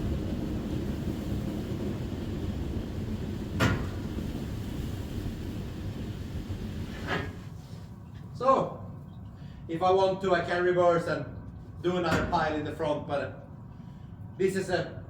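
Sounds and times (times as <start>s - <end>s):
steady low rumble: 0.0s - 9.0s
sharp clunks: 3.6s - 4.0s.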